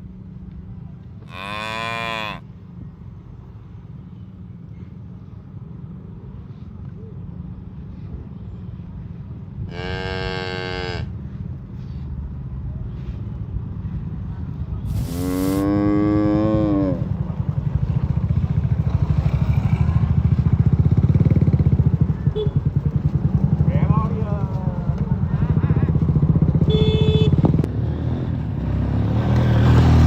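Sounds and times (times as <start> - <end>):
cattle mooing: 1.3 - 2.4, 9.7 - 11.1, 14.9 - 17.1.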